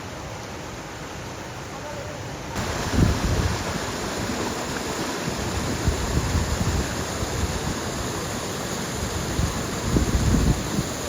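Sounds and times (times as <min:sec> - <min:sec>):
river water rushing: 0:00.0 - 0:11.0
wind buffeting microphone: 0:02.6 - 0:11.0.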